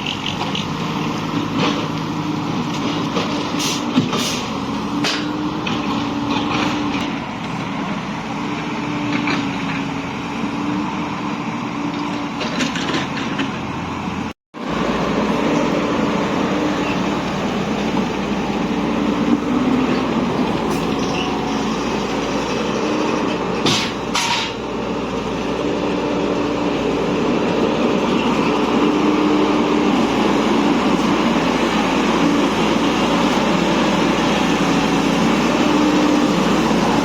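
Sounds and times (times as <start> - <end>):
moving vehicle engine and road noise: 0.0 - 37.0.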